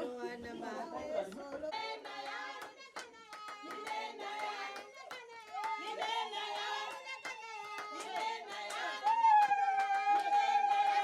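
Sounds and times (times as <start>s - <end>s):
people singing: 0.0s - 11.0s
hand clapping: 2.1s - 11.0s.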